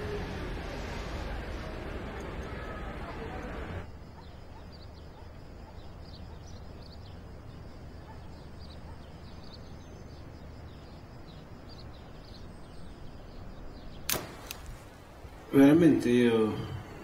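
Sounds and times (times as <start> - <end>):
bird chirps: 4.0 - 14.8
sharp click: 14.1 - 14.7.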